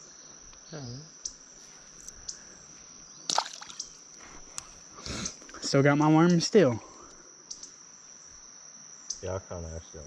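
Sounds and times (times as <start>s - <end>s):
crickets trilling: 0.0s - 10.0s
sharp splash or knock: 3.3s - 3.8s
water splashing and sloshing: 3.3s - 4.0s.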